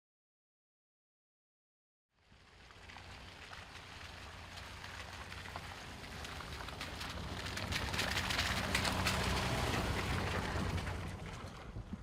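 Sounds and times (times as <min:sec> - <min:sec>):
dense crackling noise: 0:02.2 - 0:12.0
vehicle engine humming: 0:02.6 - 0:12.0.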